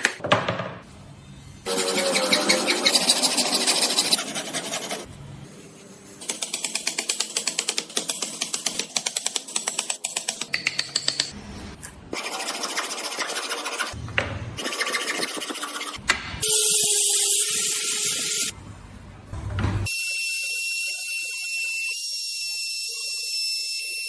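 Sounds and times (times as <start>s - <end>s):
fast regular tool strokes: 1.7s - 5.1s
woodworking tool scraping: 1.7s - 5.1s.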